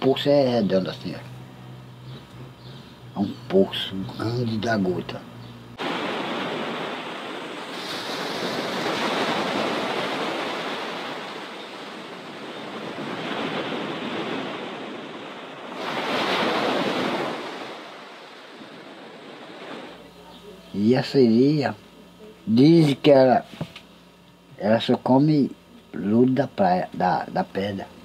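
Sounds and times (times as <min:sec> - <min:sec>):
waves breaking on beach: 0:05.8 - 0:20.0.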